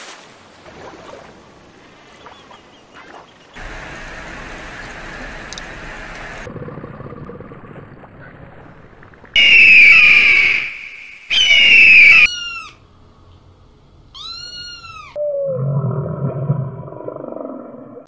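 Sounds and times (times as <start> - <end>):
kitten meowing: 14.2 - 15.2.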